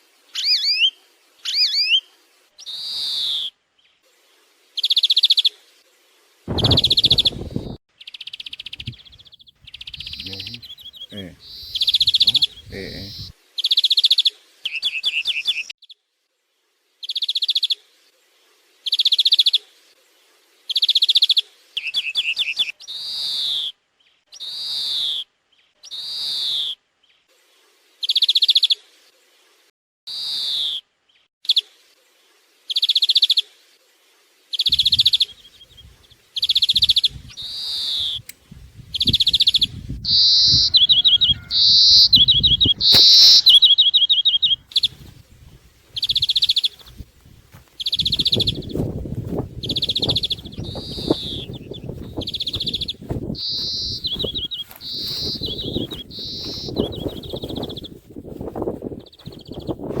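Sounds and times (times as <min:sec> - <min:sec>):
electronic bird caller calls: 0:08.5 - 0:13.3, 0:39.0 - 0:45.0, 0:49.7 - 0:57.8.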